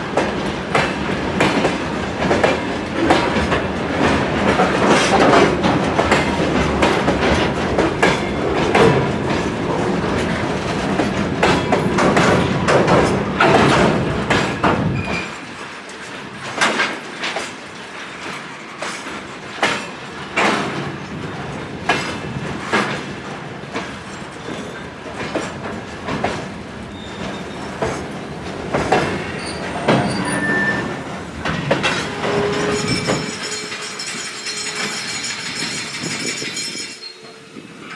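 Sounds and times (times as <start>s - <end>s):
wheels clacking over rail joints: 0.0s - 36.8s
wheel squeals: 14.9s - 15.4s, 26.9s - 27.8s, 29.3s - 31.0s, 32.1s - 37.4s.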